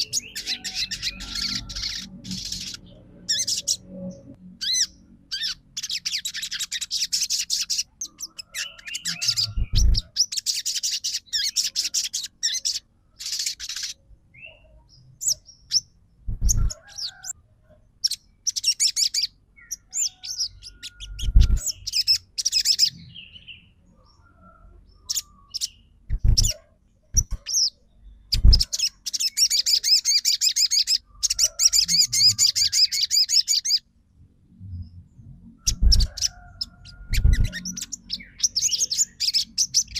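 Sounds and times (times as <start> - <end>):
bird singing fast high trills: 0.0 - 14.0.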